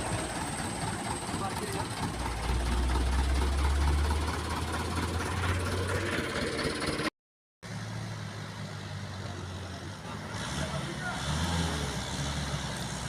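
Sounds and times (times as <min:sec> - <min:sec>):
heavy truck diesel engine running: 0:00.0 - 0:07.1, 0:07.7 - 0:13.0
truck engine idling: 0:00.0 - 0:07.1.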